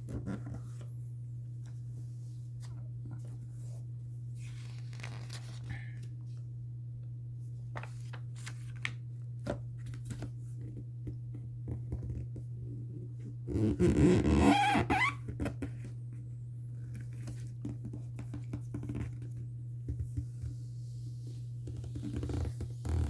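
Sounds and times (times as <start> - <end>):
steady low hum: 0.0 - 14.3, 15.1 - 23.0
paper rustling and crinkling: 2.5 - 6.4, 7.7 - 10.4.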